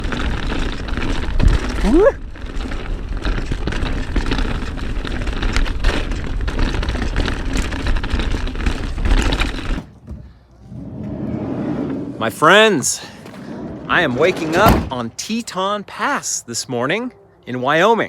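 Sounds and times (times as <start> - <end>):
bike tyres clattering over dirt: 0.0 - 10.4.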